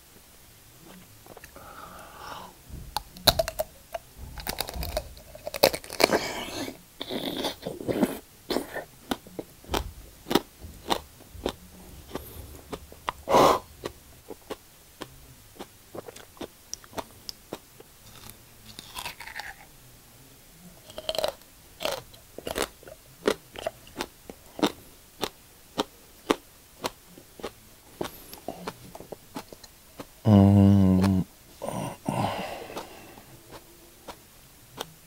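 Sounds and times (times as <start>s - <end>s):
crunchy chewing of leaf: 3.2s - 19.7s, 20.8s - 30.2s.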